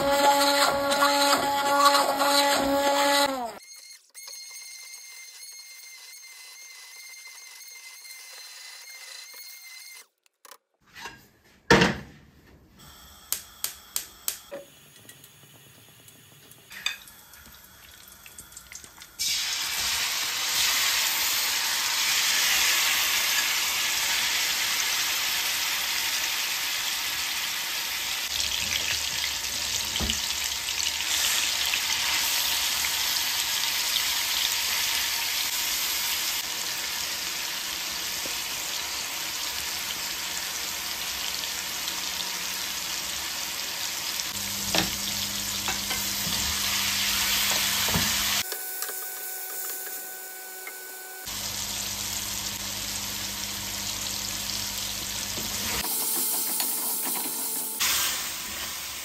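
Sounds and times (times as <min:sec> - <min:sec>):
chicken sizzling in hot oil: 0:14.8 - 0:50.2, 0:51.2 - 0:59.0.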